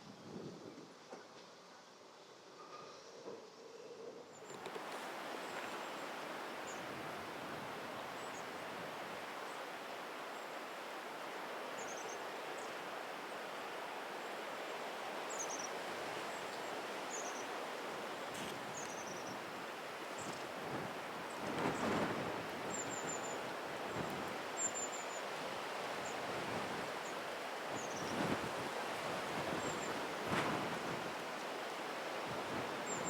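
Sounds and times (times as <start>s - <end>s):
outdoor background noise: 0.0s - 33.0s.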